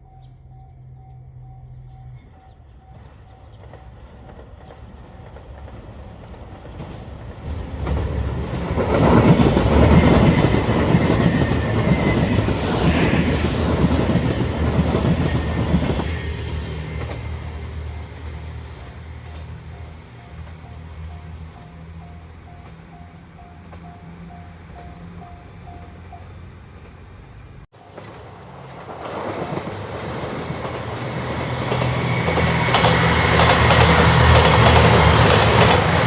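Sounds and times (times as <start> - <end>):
train wheels clacking over rail joints: 27.9 - 36.0.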